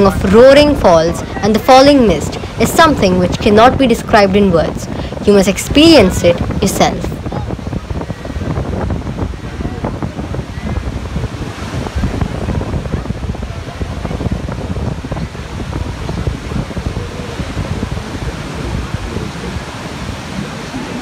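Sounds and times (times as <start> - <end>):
waterfall roaring: 0.0 - 21.0
wind buffeting microphone: 0.0 - 21.0.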